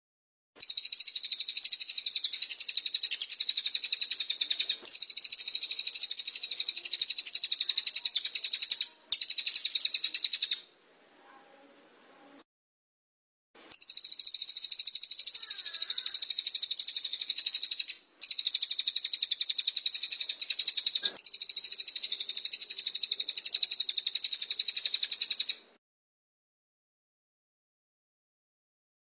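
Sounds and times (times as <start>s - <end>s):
bird trilling: 0.6s - 10.7s, 13.6s - 25.6s.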